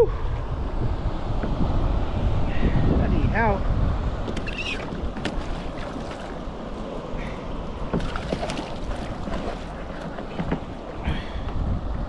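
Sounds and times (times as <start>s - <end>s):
wind on microphone: 0.0s - 12.0s
water slapping plastic kayak hull: 4.2s - 11.6s
sharp water splash: 4.3s - 6.6s, 7.9s - 10.5s.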